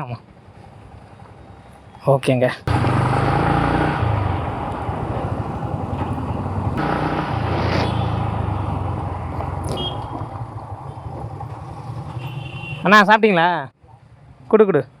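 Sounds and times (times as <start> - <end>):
road and traffic noise: 0.0 - 15.0
motorcycle engine rumble: 2.7 - 12.7.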